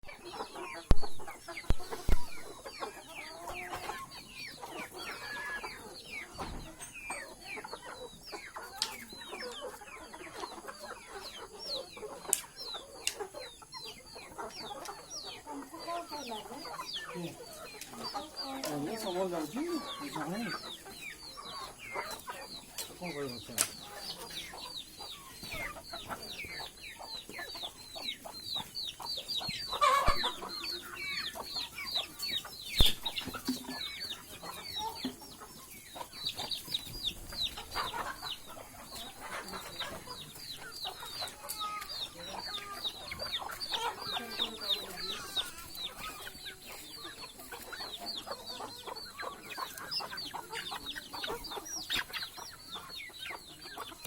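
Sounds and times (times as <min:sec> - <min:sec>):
chickens calling and clucking: 0:00.0 - 0:54.0.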